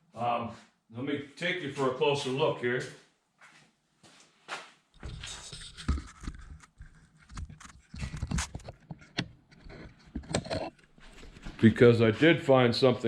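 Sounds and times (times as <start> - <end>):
handling knocks and scrapes: 5.0 - 12.3.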